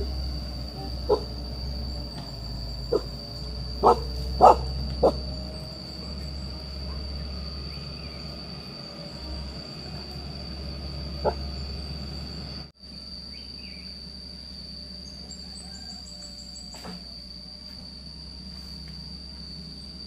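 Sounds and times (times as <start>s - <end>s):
high-pitched whine: 0.0s - 20.0s
dog barking: 1.0s - 1.4s, 2.9s - 3.1s, 3.8s - 5.3s, 6.8s - 7.0s, 11.2s - 11.5s.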